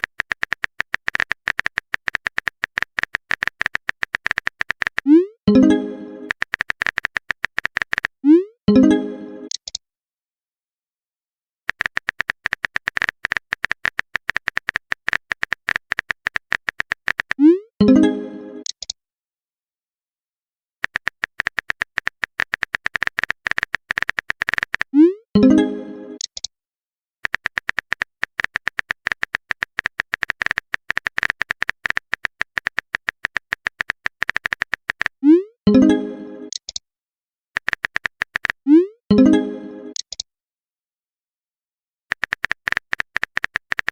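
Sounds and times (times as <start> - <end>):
phone keyboard typing clicks: 0.0 - 5.1, 6.3 - 8.2, 9.5 - 9.8, 11.7 - 17.4, 20.8 - 25.0, 26.2 - 26.5, 27.2 - 35.2, 36.5 - 36.8, 37.6 - 38.6, 39.9 - 40.3, 42.1 - 43.9.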